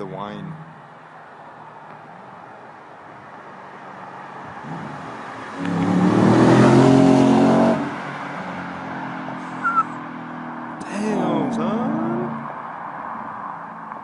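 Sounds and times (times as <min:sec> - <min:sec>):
car accelerating at full throttle: 0:03.8 - 0:14.0.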